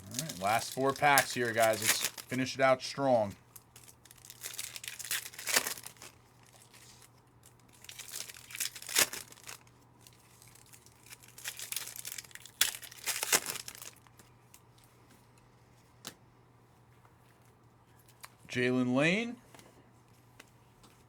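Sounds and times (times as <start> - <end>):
foil wrappers tearing and crinkling: 0.0 - 2.4, 3.5 - 14.3.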